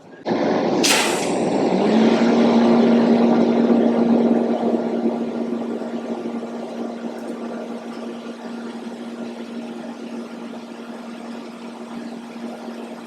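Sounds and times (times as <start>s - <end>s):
welding arc hissing: 0.8s - 1.8s.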